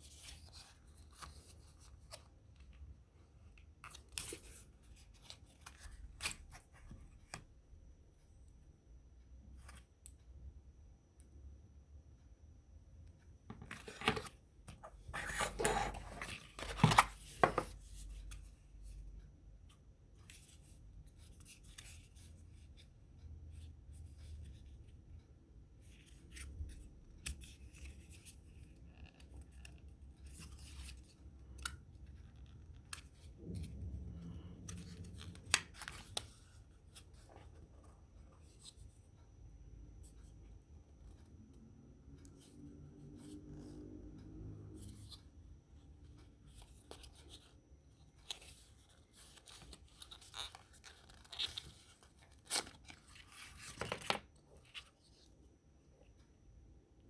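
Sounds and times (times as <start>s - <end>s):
packaging rustling and scraping: 13.5s - 17.8s.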